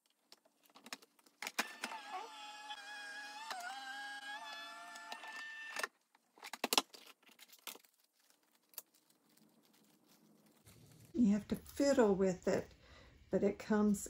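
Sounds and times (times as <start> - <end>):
die-cutting machine whine: 1.6 - 5.9.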